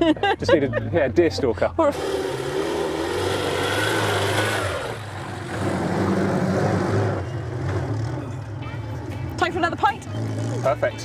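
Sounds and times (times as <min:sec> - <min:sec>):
car engine running: 0:01.9 - 0:08.6.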